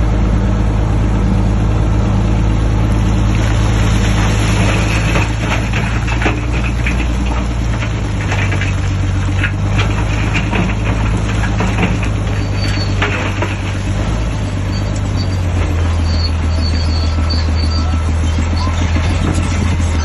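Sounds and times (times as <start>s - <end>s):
bulldozer diesel engine running: 0.0s - 20.0s
metal clanks and rattles: 4.2s - 16.0s, 18.3s - 20.0s.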